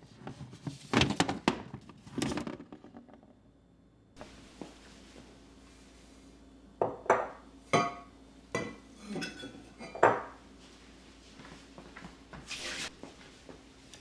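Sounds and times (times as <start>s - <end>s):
glass or ceramic items clinking: 6.9s - 10.4s.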